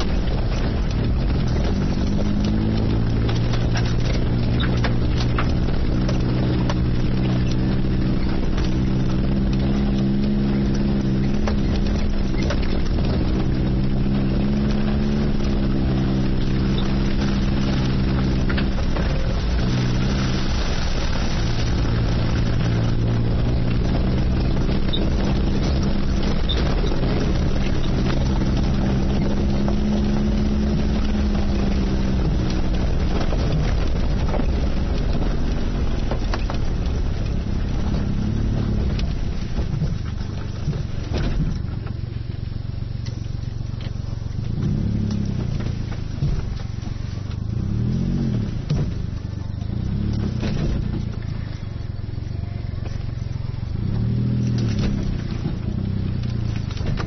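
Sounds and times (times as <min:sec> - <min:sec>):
small turbo engine revving: 0:00.0 - 0:42.0, 0:42.8 - 0:57.0
knocks and rattles: 0:00.0 - 0:42.2, 0:43.1 - 0:57.0.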